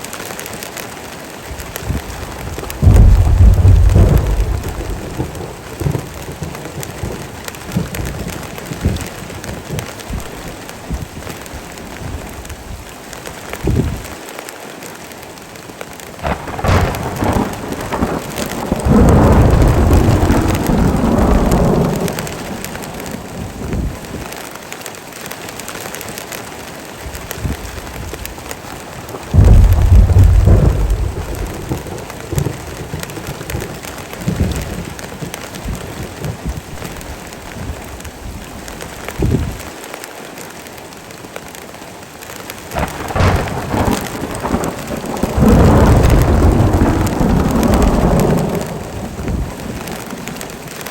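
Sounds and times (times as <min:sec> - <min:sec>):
heavy rain falling: 0:00.0 - 0:50.9
thunder rolling: 0:01.6 - 0:11.3, 0:16.2 - 0:24.3, 0:29.0 - 0:39.6, 0:42.7 - 0:50.9.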